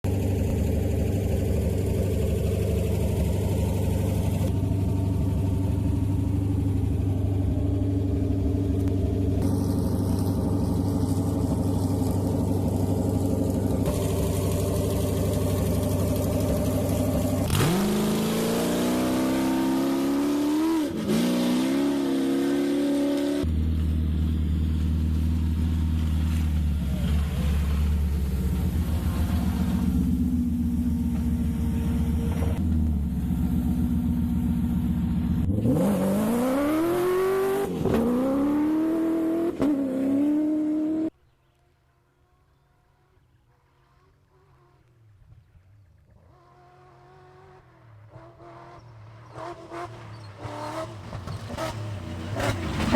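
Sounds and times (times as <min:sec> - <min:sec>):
gear change: 0:00.1 - 0:21.5
rally car engines revving: 0:00.2 - 0:41.1, 0:46.0 - 0:52.9.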